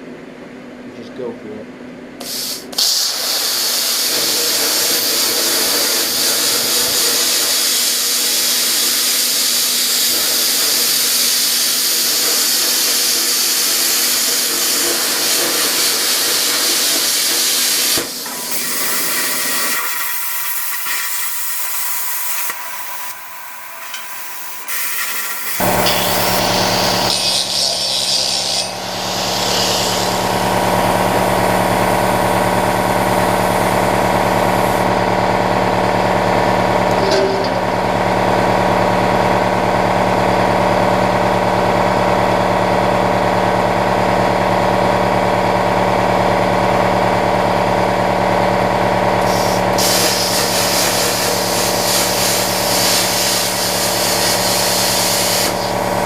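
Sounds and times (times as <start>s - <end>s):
air hissing: 2.2s - 10.0s, 15.0s - 34.9s, 49.2s - 56.0s
plasma cutter buzzing: 2.2s - 35.2s, 36.8s - 38.0s, 49.2s - 56.0s.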